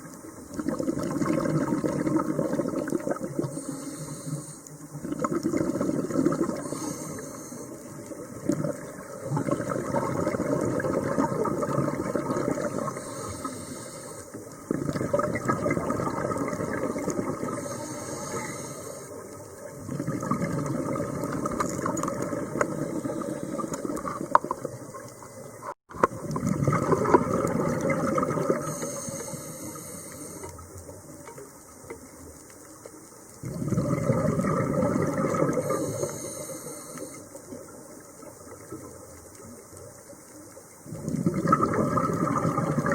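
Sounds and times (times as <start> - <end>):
exhaled bubbles rushing: 0.4 - 3.7, 5.0 - 6.9, 7.9 - 13.3, 14.6 - 28.9, 33.4 - 36.2, 40.9 - 42.9
regulator inhalation hiss: 3.4 - 5.0, 6.6 - 8.1, 12.6 - 14.5, 17.5 - 19.2, 22.7 - 24.0, 28.6 - 30.8, 35.5 - 37.6.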